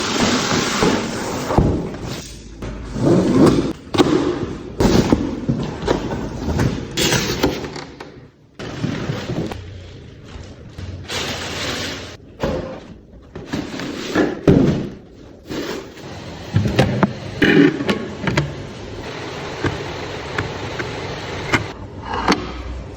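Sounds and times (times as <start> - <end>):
packaging rustling and scraping: 8.6 - 12.2.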